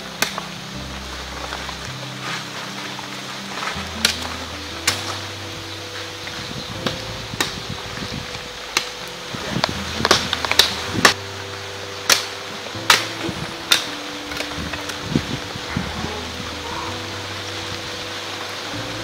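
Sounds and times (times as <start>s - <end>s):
steady low hum: 0.0s - 19.0s
blade chopping wood: 9.6s - 11.2s, 12.1s - 14.9s.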